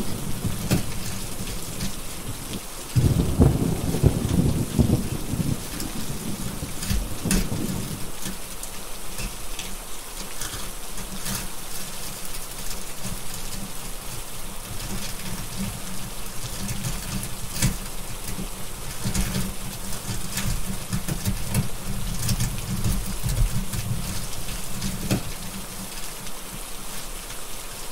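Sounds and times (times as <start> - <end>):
heavy rain: 0.0 - 27.9
rolling thunder: 3.0 - 8.0.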